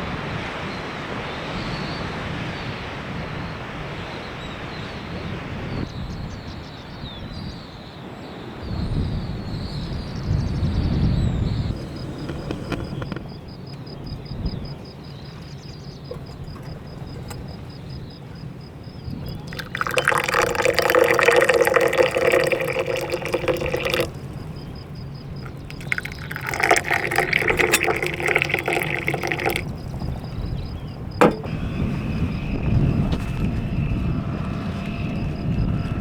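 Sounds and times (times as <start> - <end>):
tea pouring into a cup: 11.6 - 13.2, 19.2 - 30.3, 31.2 - 31.5.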